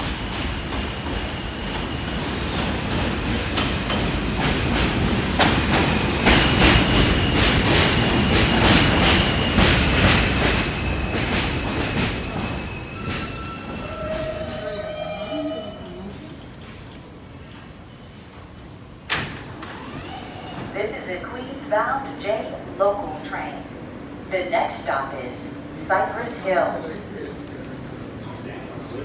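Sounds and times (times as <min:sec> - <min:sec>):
train wheels clicking over rail joints: 0:00.0 - 0:13.6
train rumble: 0:00.0 - 0:29.0
high wheel squeal: 0:10.7 - 0:16.1.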